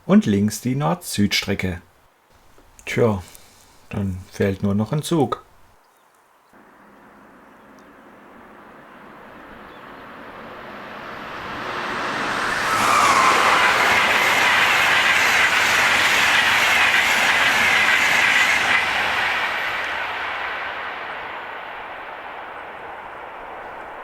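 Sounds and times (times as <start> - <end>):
high squeal from train wheels: 11.2 - 24.0
wheels clattering on rails: 11.3 - 24.0.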